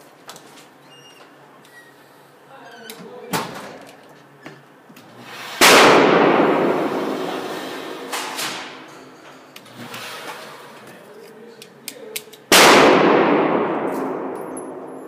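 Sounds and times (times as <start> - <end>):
gunshot with echo: 5.6 - 8.8, 12.5 - 15.0.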